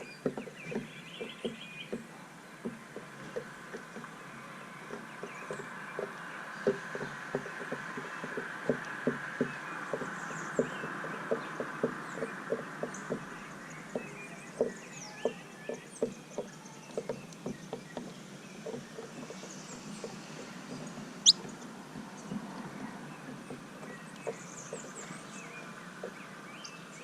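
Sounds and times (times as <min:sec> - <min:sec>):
birds tapping at feeder: 0:00.0 - 0:26.7
faint bird chirps: 0:21.2 - 0:21.6.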